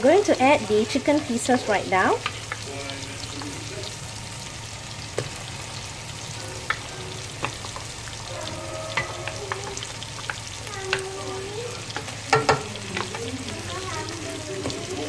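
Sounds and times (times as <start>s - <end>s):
food sizzling in a pan: 0.0s - 15.0s
utensil scraping a pan: 6.5s - 14.9s.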